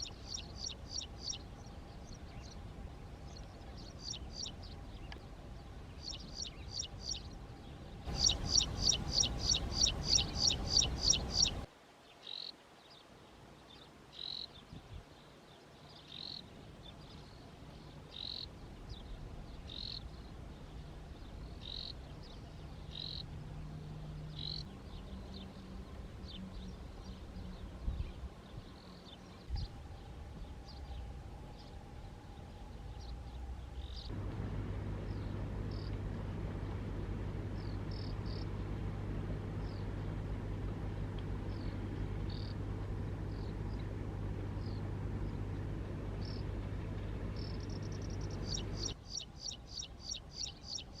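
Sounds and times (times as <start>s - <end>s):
bird chirping: 0.0s - 2.6s, 3.2s - 13.0s, 13.7s - 25.6s, 26.2s - 36.0s, 37.4s - 38.6s, 41.4s - 51.0s
fast bird song: 0.0s - 2.6s, 3.2s - 13.0s, 13.7s - 31.8s, 41.4s - 42.6s, 46.2s - 46.6s, 47.3s - 51.0s
steady low hum: 0.0s - 11.7s, 16.1s - 50.9s.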